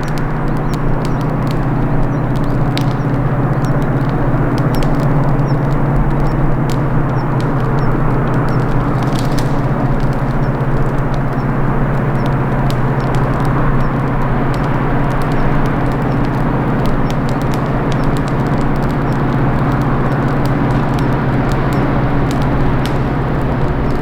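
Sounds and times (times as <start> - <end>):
campfire twigs crackling: 0.0 - 24.0
diesel locomotive engine drone: 0.0 - 24.0.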